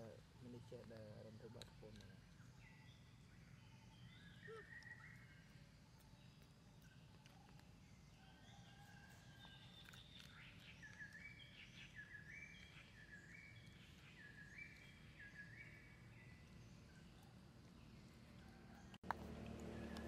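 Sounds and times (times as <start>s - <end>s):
low background rumble: 14.9s - 20.0s.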